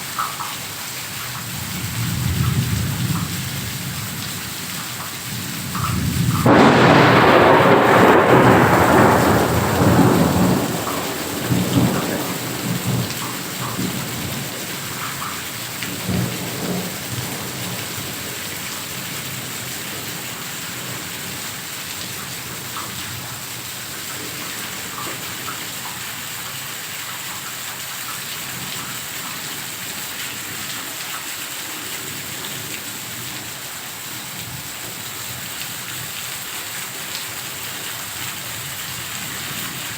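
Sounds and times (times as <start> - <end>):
heavy rain falling: 0.0 - 39.9
faint thunder rumbles: 1.4 - 21.6
thunder clap rolling: 1.5 - 4.1, 5.3 - 14.6.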